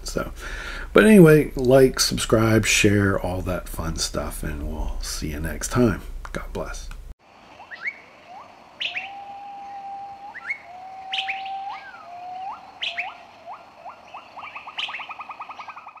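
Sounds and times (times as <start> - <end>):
whistled birdsong: 7.2 - 16.0
fast bird trill: 7.5 - 16.0
sharp high bird chirps: 7.5 - 16.0.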